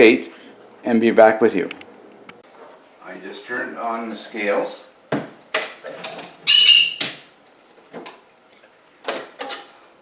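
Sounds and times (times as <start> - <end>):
pet bird squawking: 6.5 - 7.1.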